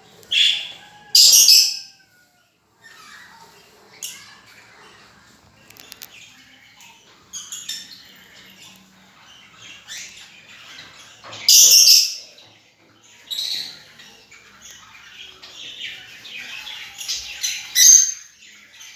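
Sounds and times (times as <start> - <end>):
lovebirds chirping and chattering: 0.0 - 18.9
loud harsh squawk: 0.3 - 1.9.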